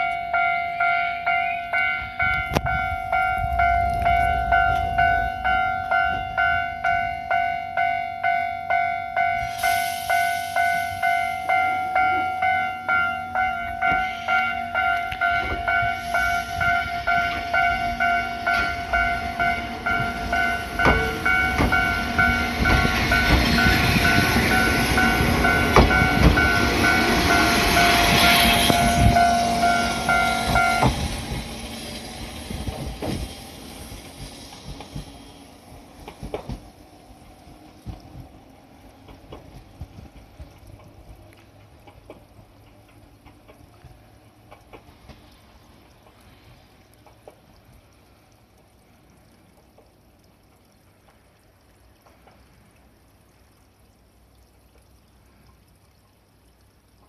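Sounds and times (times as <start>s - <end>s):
level-crossing bell ringing: 0.0s - 31.0s
train running noise: 0.0s - 47.4s
train wheels clicking over rail joints: 12.9s - 47.5s.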